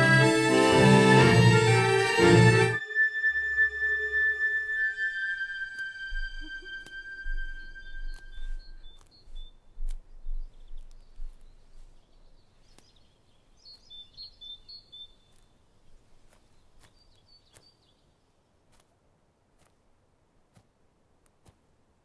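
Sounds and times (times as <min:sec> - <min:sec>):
faint outdoor background: 0:00.0 - 0:22.0
birds chirping: 0:02.5 - 0:18.6.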